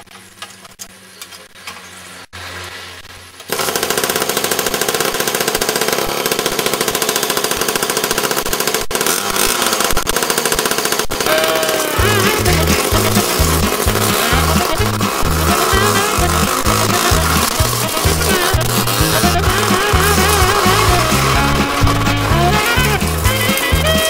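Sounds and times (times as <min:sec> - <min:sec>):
moped engine rattling: 0:03.4 - 0:24.0
low hum: 0:11.2 - 0:24.0.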